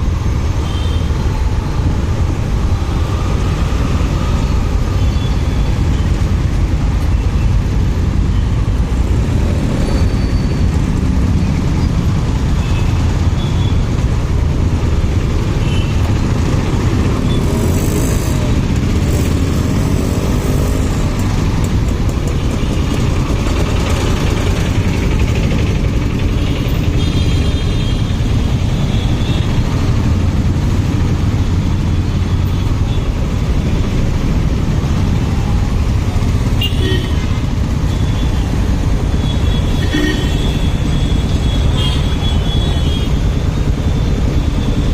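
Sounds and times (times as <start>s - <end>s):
passing traffic: 0.0s - 44.9s
motorcycle engine running: 16.1s - 44.9s.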